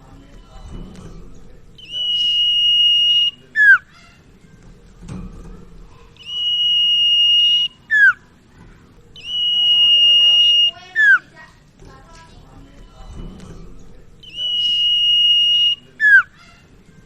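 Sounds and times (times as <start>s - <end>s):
bird whistling song: 1.8s - 4.1s, 6.2s - 8.3s, 9.1s - 11.3s, 14.2s - 16.6s.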